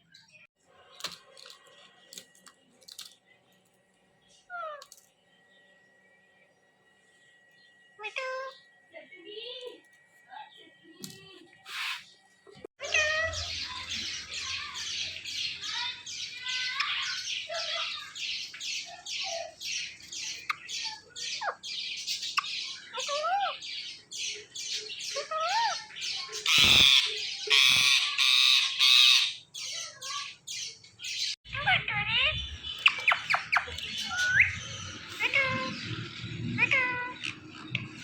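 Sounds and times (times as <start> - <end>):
parrots screeching: 11.7 - 12.1, 12.8 - 18.2, 20.4 - 23.6, 24.9 - 30.4, 31.5 - 37.8
parrots squawking: 11.7 - 12.1, 12.8 - 19.6, 20.3 - 23.6, 24.3 - 30.4, 31.5 - 38.0.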